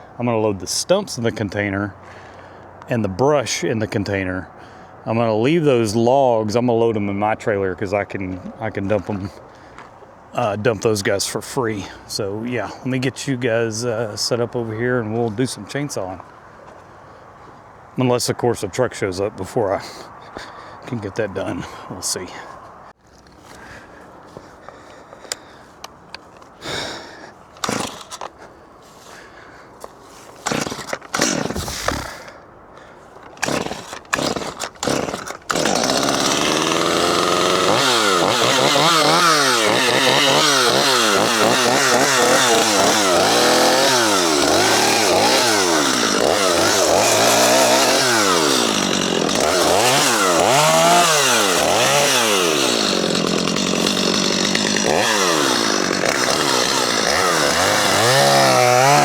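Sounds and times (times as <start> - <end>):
chainsaw revving and cutting: 27.6 - 28.2, 30.4 - 32.3, 33.4 - 59.0.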